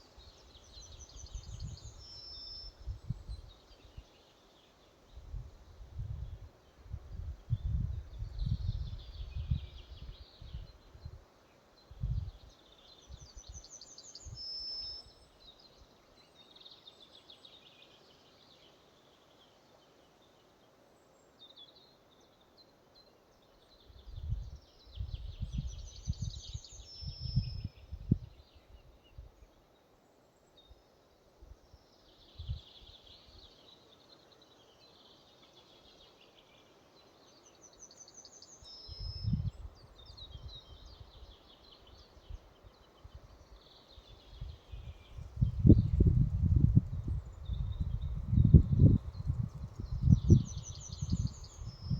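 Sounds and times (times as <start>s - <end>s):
wind gusts on microphone: 5.1s - 11.2s, 11.9s - 12.5s, 24.0s - 29.3s, 38.9s - 43.3s, 44.1s - 51.9s.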